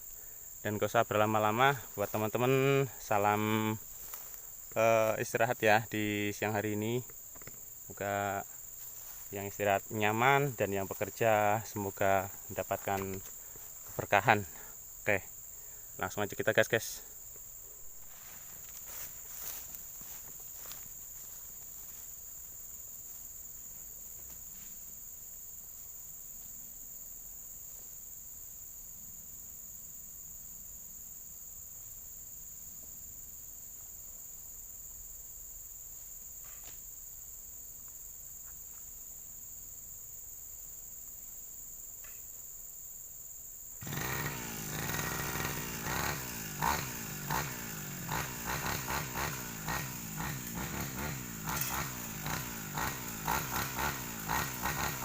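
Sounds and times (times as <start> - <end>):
high insect drone: 0.0 - 55.0
brush cutter engine revving: 1.0 - 14.7, 17.9 - 22.0, 43.8 - 55.0.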